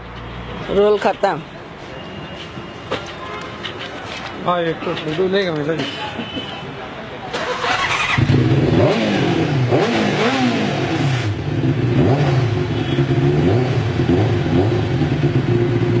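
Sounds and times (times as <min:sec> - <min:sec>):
motorcycle engine revving and idling: 0:07.6 - 0:16.0.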